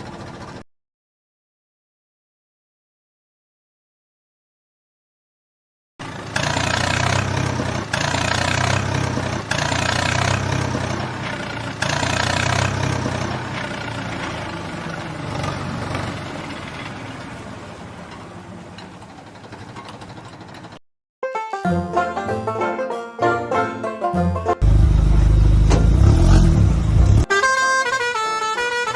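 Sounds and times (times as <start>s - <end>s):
heavy vehicle engine humming: 0.0s - 0.6s, 6.0s - 20.8s, 24.6s - 28.9s.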